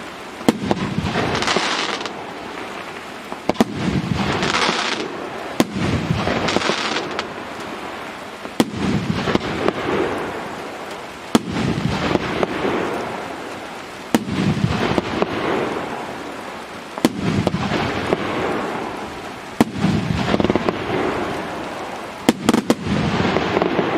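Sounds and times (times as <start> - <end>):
firework crackling bursts: 0.0 - 23.9
firework shot report: 0.4 - 2.1, 3.4 - 7.3, 11.3 - 12.9, 14.1 - 16.0, 17.0 - 18.9, 19.6 - 21.3, 22.2 - 23.9.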